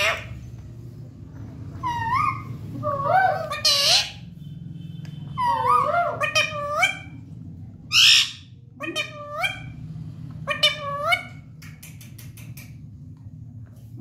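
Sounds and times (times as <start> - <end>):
parrot chattering calls: 0.0 - 0.4, 1.7 - 4.3, 5.4 - 7.3, 7.9 - 9.8, 10.4 - 12.8
parrot harsh squawk: 0.0 - 0.4, 1.8 - 4.3, 5.4 - 7.2, 7.9 - 9.8, 10.4 - 11.5.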